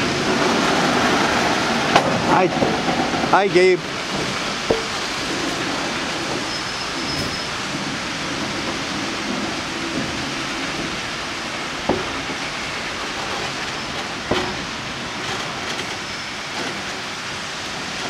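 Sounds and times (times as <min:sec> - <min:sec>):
train cars rolling past: 0:00.0 - 0:18.0
sharp knocks: 0:04.2 - 0:05.1, 0:11.8 - 0:12.5.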